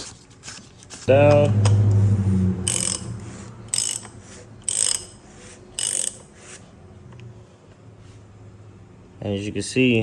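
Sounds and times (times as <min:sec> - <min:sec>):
ratchet wrench clicking: 0:02.6 - 0:06.3.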